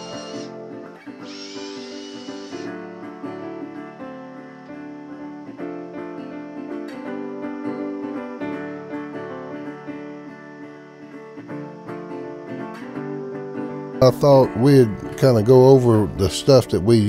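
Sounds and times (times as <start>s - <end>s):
strummed guitar music: 0.0s - 17.0s.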